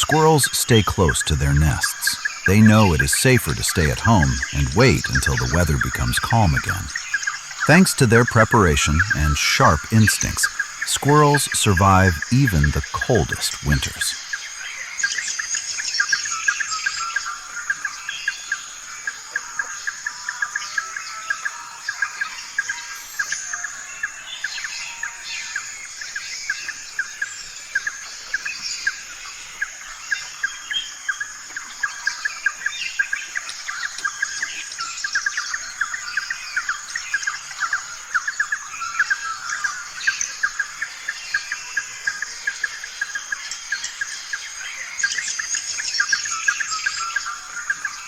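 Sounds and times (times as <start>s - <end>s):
small birds chirping: 24.1s - 48.0s.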